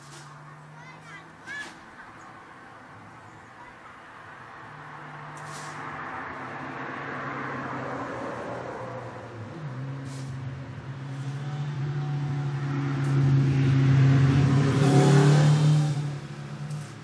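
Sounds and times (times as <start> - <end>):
car driving by: 4.4 - 17.0.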